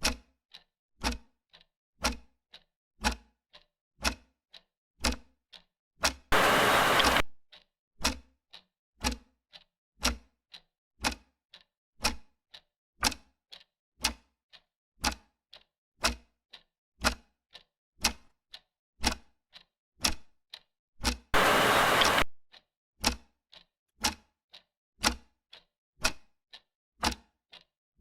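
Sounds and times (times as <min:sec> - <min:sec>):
clock ticking: 0:00.0 - 0:27.7
burst of hiss: 0:06.4 - 0:07.2, 0:21.4 - 0:22.2.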